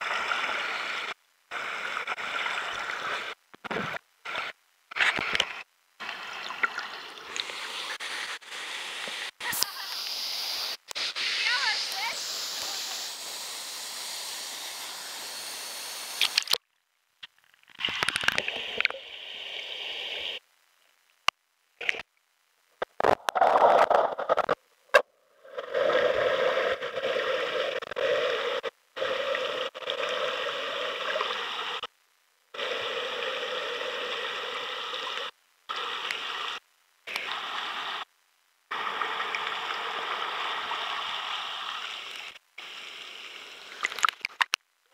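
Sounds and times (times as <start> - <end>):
waterfall rushing water: 9.4 - 16.4.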